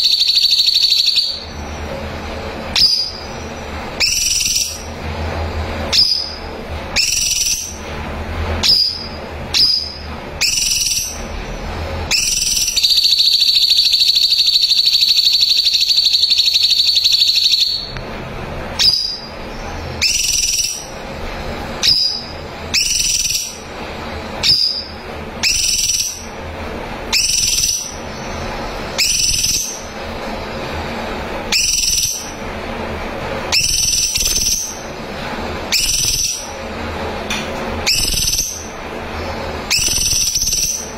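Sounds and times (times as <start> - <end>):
bird high whistled notes: 0.0 - 1.5, 2.8 - 3.4, 4.0 - 4.9, 5.9 - 6.4, 7.0 - 7.8, 8.6 - 11.2, 12.1 - 17.9, 18.8 - 19.3, 20.0 - 20.9, 21.8 - 23.6, 24.4 - 26.3, 27.1 - 29.9, 31.5 - 32.3, 33.5 - 34.8, 35.7 - 36.5, 37.8 - 38.7, 39.6 - 40.9
bird buzzy trill: 0.0 - 18.0, 18.6 - 40.9.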